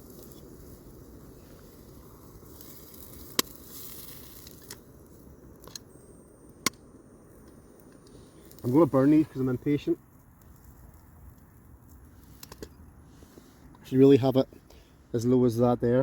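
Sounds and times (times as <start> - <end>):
burgers sizzling: 0.0 - 5.7
sharp crackles: 0.0 - 14.4.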